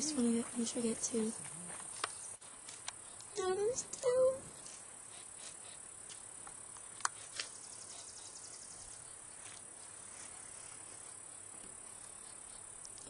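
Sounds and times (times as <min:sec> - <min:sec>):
insect-like trilling: 0:07.0 - 0:09.2.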